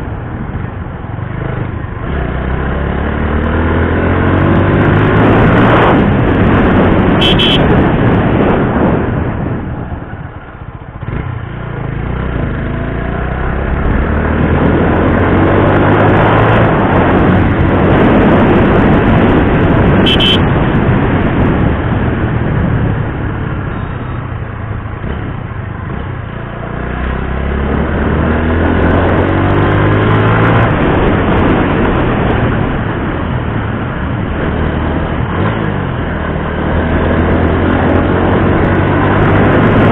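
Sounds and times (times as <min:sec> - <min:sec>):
motorcycle engine running: 0:06.0 - 0:29.5.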